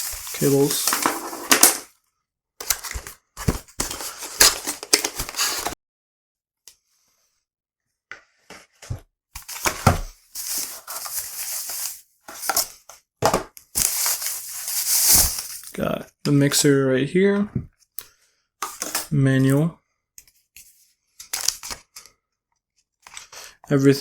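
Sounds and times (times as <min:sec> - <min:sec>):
packaging rustling and tearing: 0:00.0 - 0:01.9, 0:02.6 - 0:05.8, 0:09.4 - 0:12.7, 0:13.8 - 0:15.7, 0:21.2 - 0:21.9.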